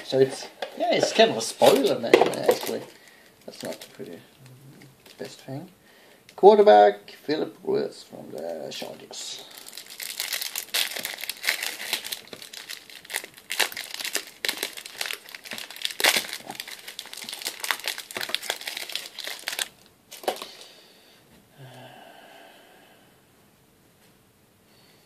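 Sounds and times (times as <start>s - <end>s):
wrapper crinkling and tearing: 0.0s - 4.2s, 5.0s - 5.5s, 8.4s - 20.7s.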